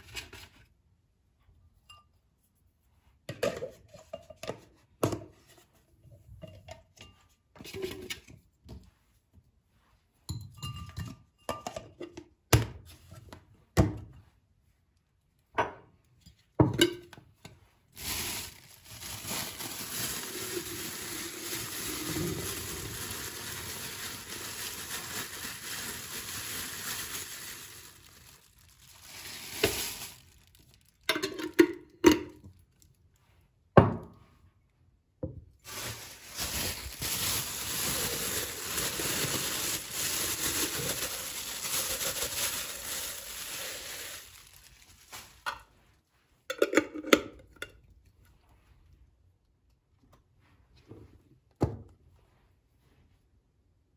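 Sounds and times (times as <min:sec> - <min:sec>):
glass and dishes clinking: 0:10.3 - 0:12.0.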